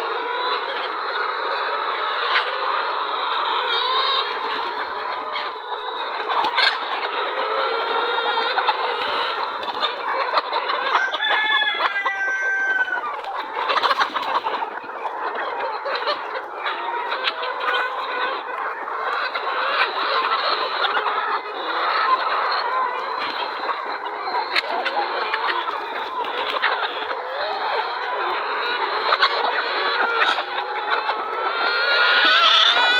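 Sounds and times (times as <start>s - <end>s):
chickens clucking: 0.0s - 32.9s
rooster crowing: 10.9s - 13.2s.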